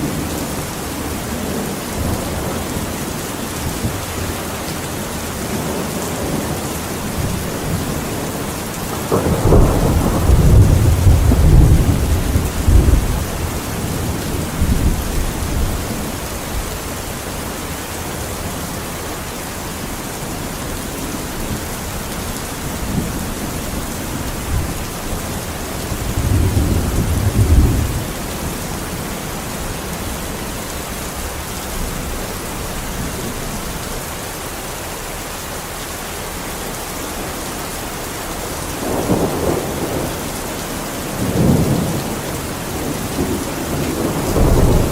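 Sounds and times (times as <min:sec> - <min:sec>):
heavy rain: 0:00.0 - 0:44.9
low rumbles of thunder: 0:05.3 - 0:17.2, 0:20.0 - 0:34.2, 0:38.6 - 0:44.9.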